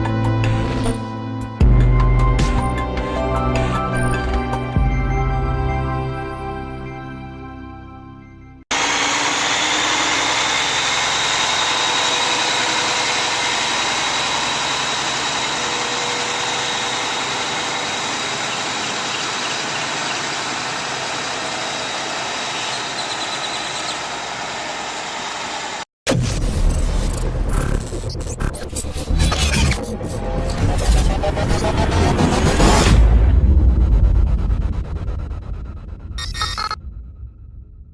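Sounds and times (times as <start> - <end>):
truck diesel engine running: 8.7 - 25.9.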